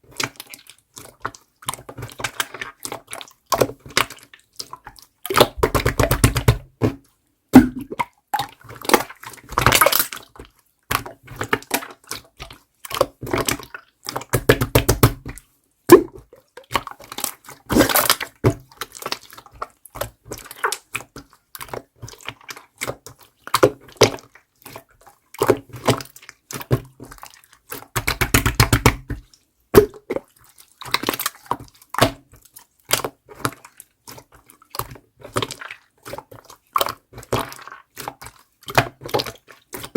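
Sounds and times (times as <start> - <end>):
slime squishing by hand: 7.6 - 39.9.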